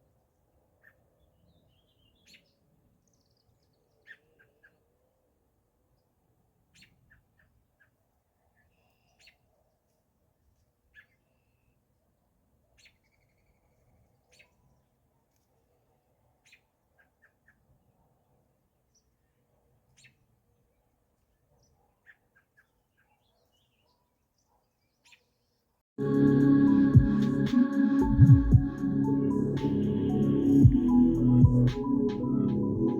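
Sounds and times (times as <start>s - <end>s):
small birds chirping: 12.8s - 14.9s, 21.3s - 25.8s.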